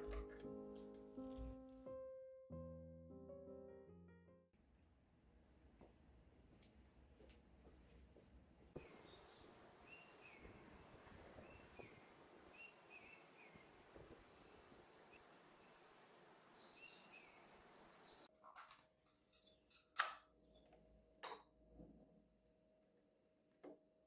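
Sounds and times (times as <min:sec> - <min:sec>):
small birds chirping: 0:08.8 - 0:18.3.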